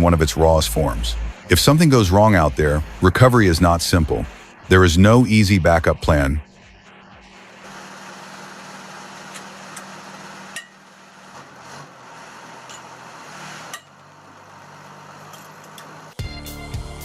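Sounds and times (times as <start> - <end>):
music with strong beat: 0.0 - 7.7, 16.2 - 17.0
heavy machine engine humming: 0.0 - 16.2.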